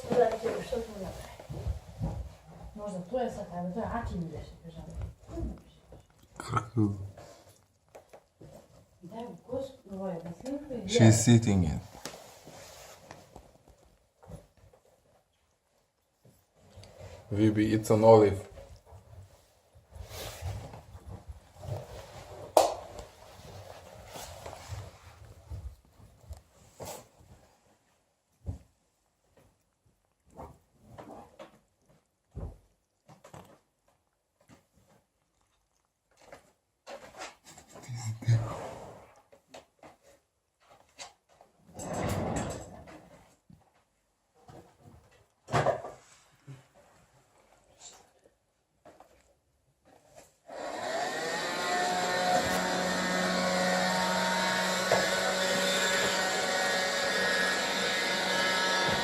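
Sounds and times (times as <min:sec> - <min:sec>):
cat chewing: 0:04.2 - 0:06.5, 0:07.1 - 0:10.7, 0:13.0 - 0:22.2, 0:23.0 - 0:27.2, 0:28.3 - 0:36.6
electric motor whirring: 0:50.5 - 0:59.0.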